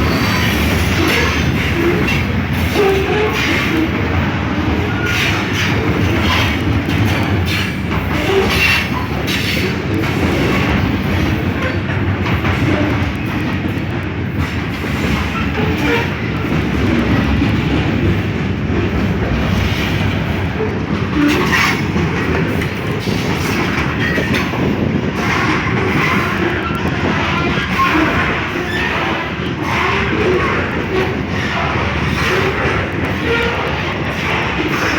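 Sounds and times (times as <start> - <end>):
freight train rumbling past: 0.0 - 34.9
wheels clacking over rail joints: 0.0 - 34.9.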